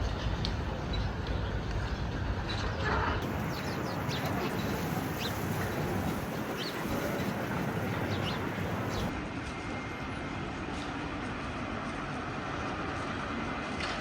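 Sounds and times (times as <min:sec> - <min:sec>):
small birds chirping: 0:03.2 - 0:09.1
traffic hum: 0:03.2 - 0:09.1.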